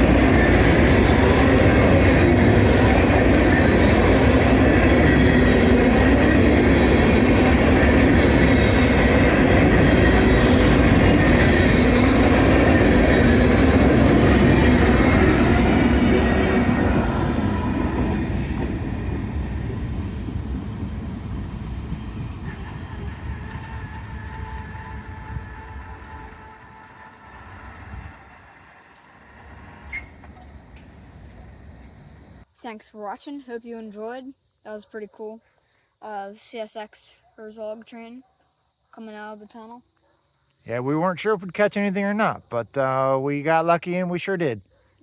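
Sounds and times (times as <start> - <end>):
freight train wheels clattering on rails: 0.0 - 26.4.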